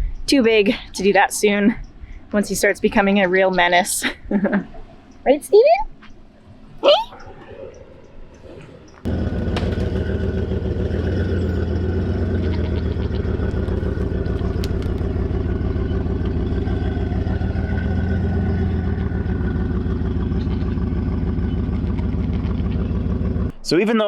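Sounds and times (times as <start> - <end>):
vehicle engine idling: 9.0 - 23.6
faint clicks: 13.4 - 15.4.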